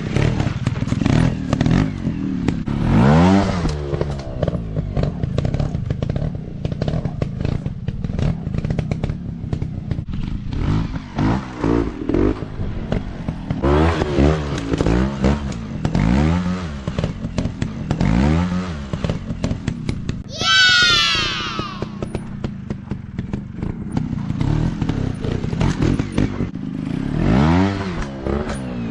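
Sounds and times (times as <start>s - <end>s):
dirt bike engine revving: 24.4s - 28.6s.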